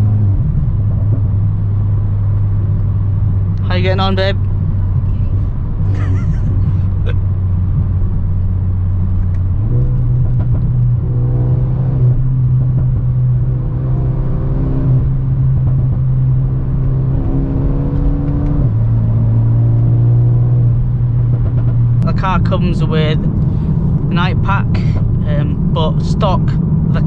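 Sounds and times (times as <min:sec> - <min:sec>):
car engine drone from inside: 0:00.0 - 0:27.0.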